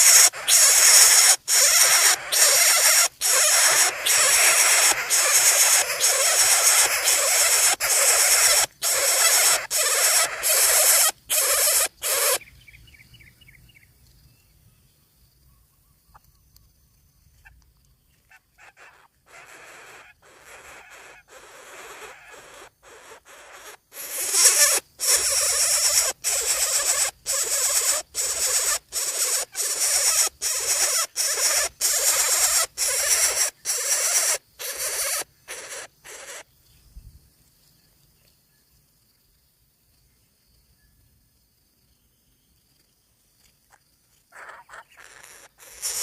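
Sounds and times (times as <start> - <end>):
nestlings raspy begging calls: 0.0 - 12.5, 18.3 - 36.5, 44.3 - 46.0.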